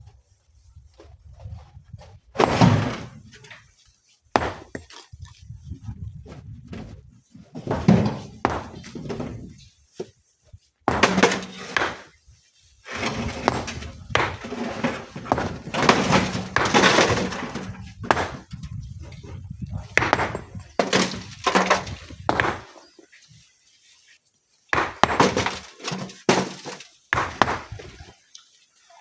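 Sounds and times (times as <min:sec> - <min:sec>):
stone cracking and knocking: 0:04.4 - 0:05.1, 0:07.6 - 0:09.4, 0:10.9 - 0:12.2, 0:13.0 - 0:18.8, 0:19.8 - 0:22.9, 0:24.7 - 0:28.1.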